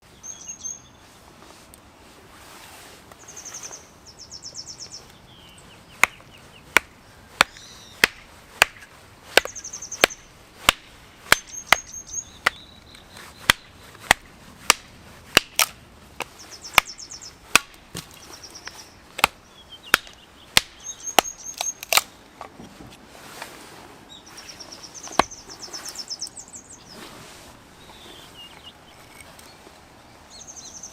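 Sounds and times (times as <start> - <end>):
birds chirping: 0.0 - 1.1, 3.2 - 14.1, 16.2 - 22.4, 24.1 - 30.9
wood being chopped: 6.0 - 22.1, 25.1 - 25.4.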